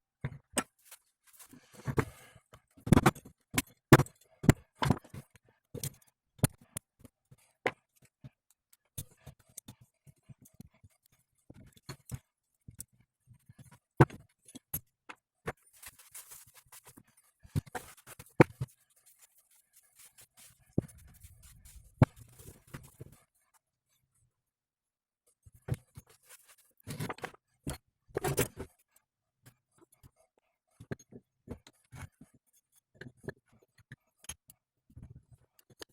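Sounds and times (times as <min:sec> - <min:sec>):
rustling: 0:15.7 - 0:17.0, 0:17.8 - 0:23.2.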